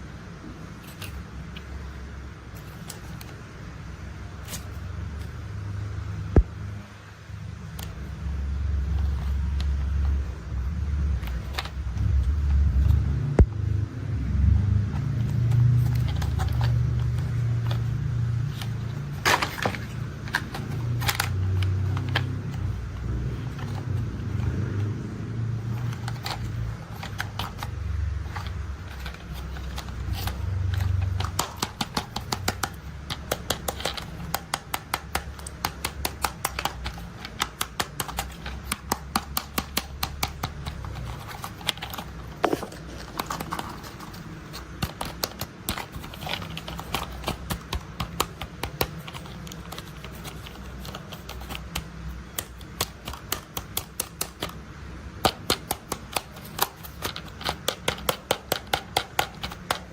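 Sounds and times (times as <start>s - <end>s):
plastic toys clicking and rattling: 15.6s - 24.6s, 25.6s - 59.9s.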